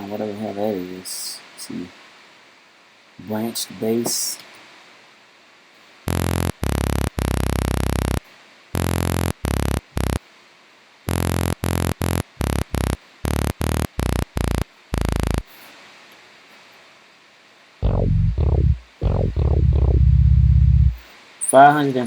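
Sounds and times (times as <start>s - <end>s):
synth bass notes: 6.1s - 8.2s, 8.8s - 10.2s, 11.1s - 15.5s, 17.8s - 21.0s.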